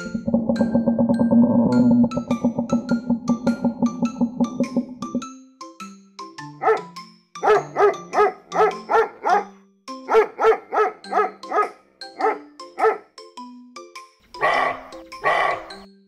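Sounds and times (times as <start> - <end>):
plucked background music: 0.0 - 15.9
dog barking: 6.6 - 9.5, 10.1 - 13.1, 14.4 - 15.8.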